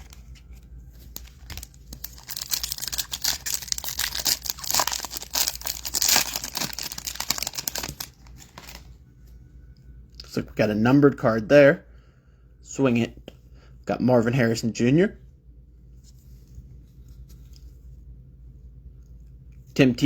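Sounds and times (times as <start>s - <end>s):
foil wrapper crinkling and tearing: 1.0s - 8.9s.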